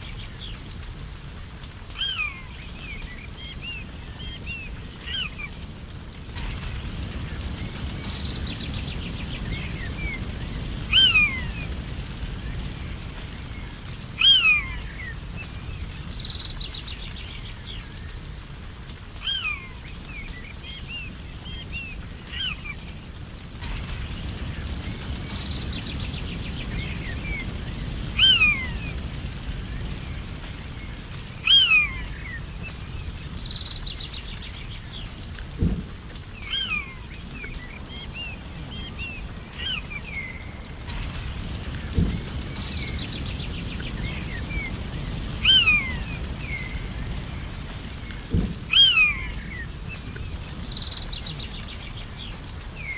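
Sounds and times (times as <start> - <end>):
rapid bird trills: 6.4 - 18.1, 23.8 - 35.2, 36.3 - 47.4, 48.0 - 52.0.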